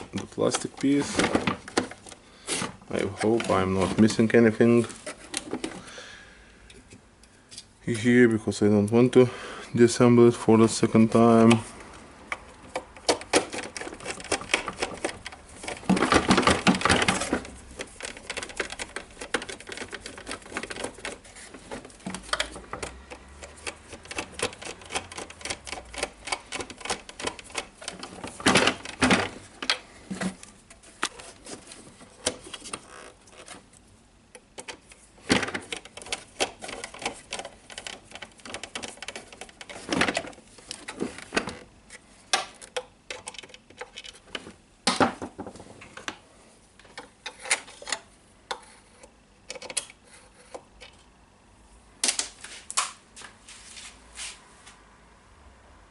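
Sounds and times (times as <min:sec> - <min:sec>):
plastic parts clicking and knocking: 0:00.0 - 0:05.9, 0:12.3 - 0:46.2, 0:46.8 - 0:51.1.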